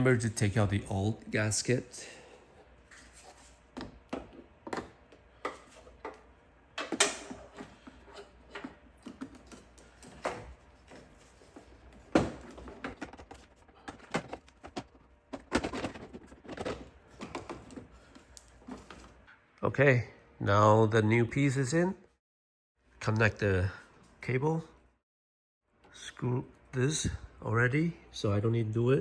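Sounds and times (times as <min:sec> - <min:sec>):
plastic parts clicking and knocking: 0:12.1 - 0:17.8.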